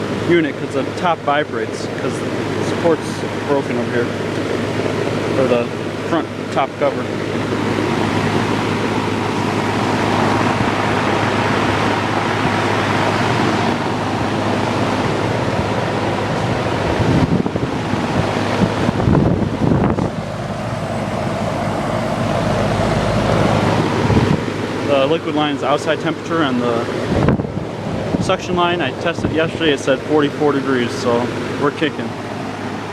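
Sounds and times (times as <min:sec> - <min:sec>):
condenser fan rushing: 0:00.0 - 0:32.9
low compressor hum: 0:00.9 - 0:12.3, 0:13.8 - 0:26.9
low rumbles: 0:15.0 - 0:26.4.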